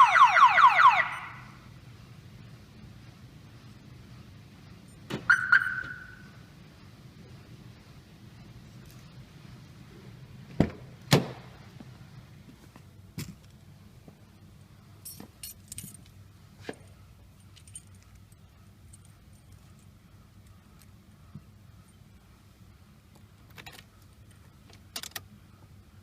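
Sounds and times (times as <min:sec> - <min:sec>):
car keys jangling: 0:15.0 - 0:16.2, 0:17.3 - 0:21.0.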